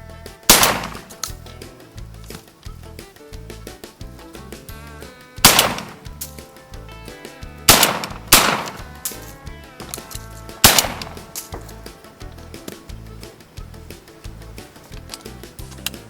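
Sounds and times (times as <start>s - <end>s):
background music with steady beat: 0.0s - 16.0s
shotgun shots: 0.5s - 1.3s, 5.4s - 6.1s, 7.7s - 9.0s, 10.6s - 11.5s.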